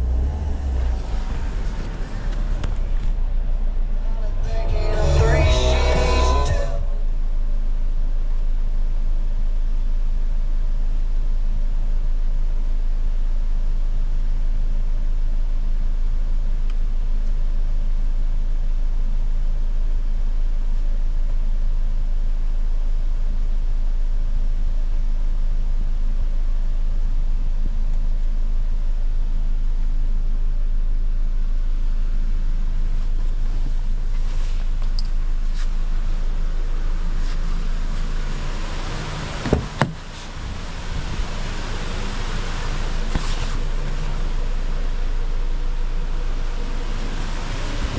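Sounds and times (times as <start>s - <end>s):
car engine idling: 0.0s - 15.1s, 25.6s - 47.9s.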